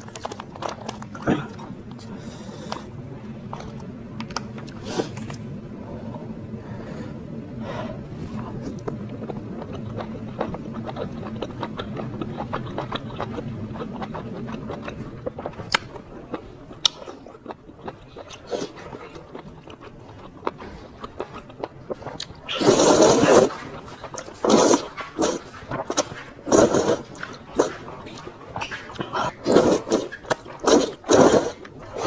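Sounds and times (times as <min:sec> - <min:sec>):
wet chewing clicks and smacks: 0:08.7 - 0:31.8
loud noodle slurp: 0:22.5 - 0:23.6, 0:24.4 - 0:27.7, 0:29.2 - 0:32.0.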